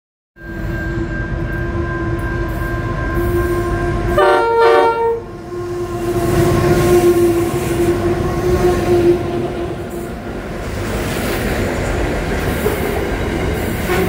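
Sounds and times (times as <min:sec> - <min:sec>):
train engine and wheel rumble: 0:00.4 - 0:14.0
locomotive horn blasts: 0:03.2 - 0:10.2.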